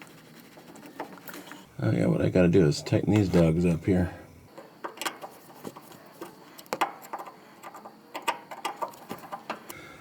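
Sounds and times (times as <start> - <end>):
hand tools clicking and tapping: 4.6 - 9.8.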